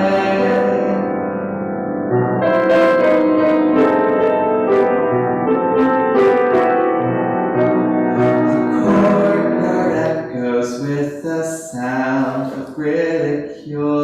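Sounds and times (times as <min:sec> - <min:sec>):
piano playing slow hymn chords: 0:00.0 - 0:11.0.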